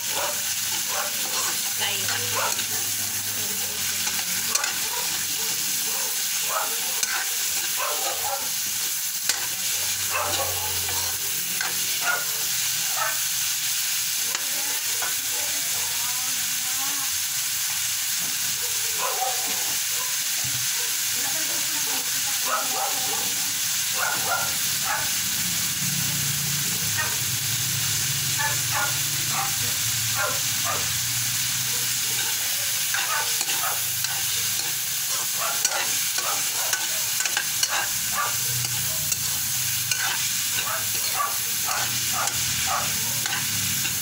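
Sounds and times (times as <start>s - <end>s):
food sizzling in a wok: 0.0s - 44.0s
metal ladle scraping a wok: 0.5s - 2.7s, 3.9s - 5.3s, 7.0s - 7.8s, 8.7s - 12.0s, 31.4s - 42.6s, 43.2s - 44.0s.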